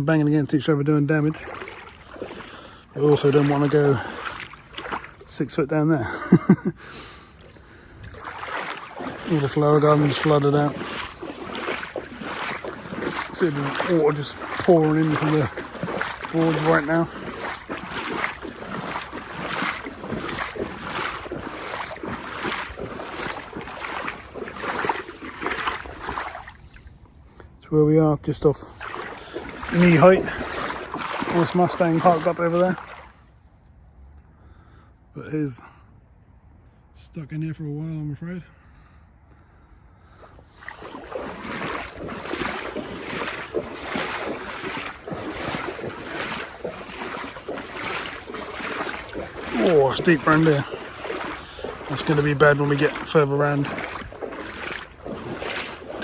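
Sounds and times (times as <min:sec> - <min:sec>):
wading through water splashing: 0:00.7 - 0:27.6, 0:28.6 - 0:33.6, 0:40.0 - 0:56.0.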